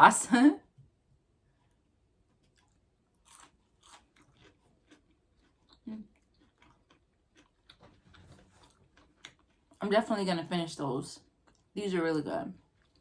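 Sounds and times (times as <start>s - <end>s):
crunchy chewing: 1.5s - 9.8s, 12.6s - 13.0s.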